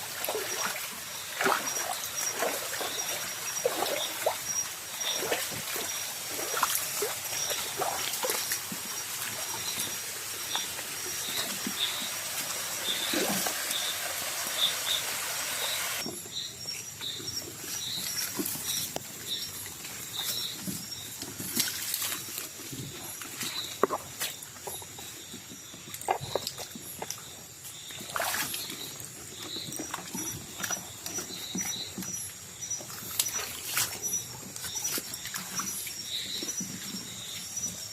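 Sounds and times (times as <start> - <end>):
insects trilling and chirping: 0.0 - 37.9
broad hiss: 11.5 - 16.0.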